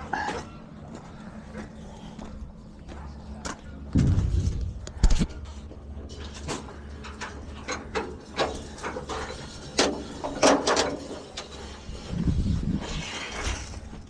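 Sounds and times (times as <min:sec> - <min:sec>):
low steady rumble: 0:01.4 - 0:09.7
scrap clanking and rattling: 0:04.0 - 0:11.9.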